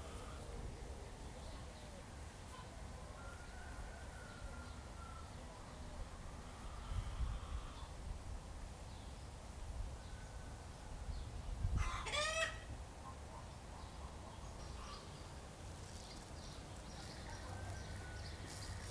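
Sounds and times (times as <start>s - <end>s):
rooster crowing: 17.4s - 18.7s.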